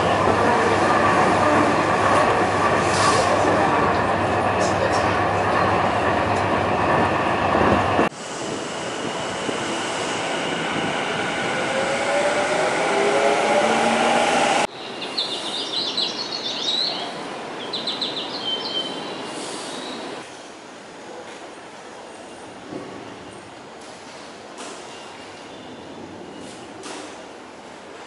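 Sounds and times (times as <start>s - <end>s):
train running rumble: 0.0s - 14.7s.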